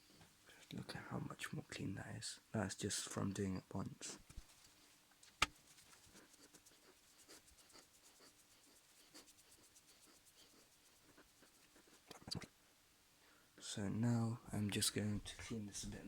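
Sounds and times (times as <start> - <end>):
hands rubbing and ticking parts: 4.2 - 12.5.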